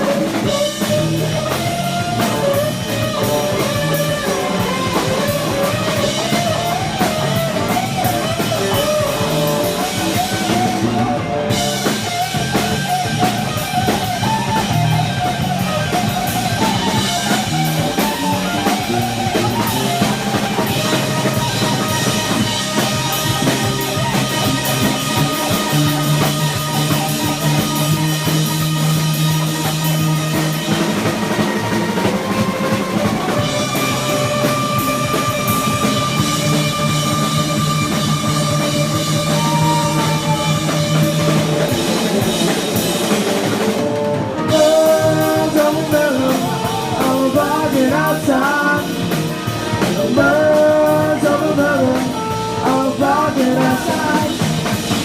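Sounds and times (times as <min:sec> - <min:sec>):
drums: 0:00.0 - 0:55.0
low bass notes: 0:00.0 - 0:55.0
wavering guitar lead: 0:00.0 - 0:55.0.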